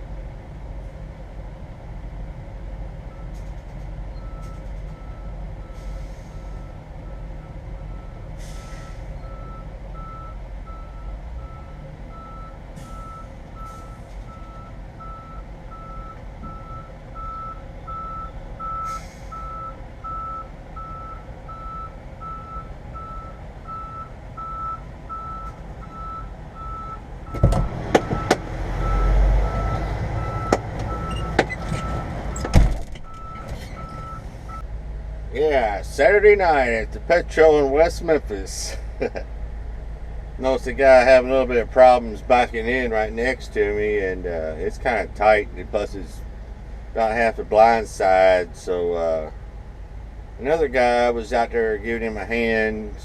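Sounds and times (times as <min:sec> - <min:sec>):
low engine rumble: 0:00.0 - 0:53.0
truck backup alarm beeping: 0:03.1 - 0:03.5, 0:04.1 - 0:34.7
sharp loud knocks: 0:27.3 - 0:28.5.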